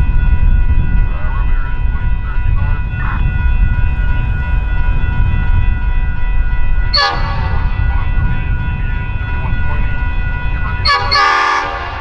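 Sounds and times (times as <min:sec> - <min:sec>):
diesel train rumbling past: 0:00.0 - 0:12.0.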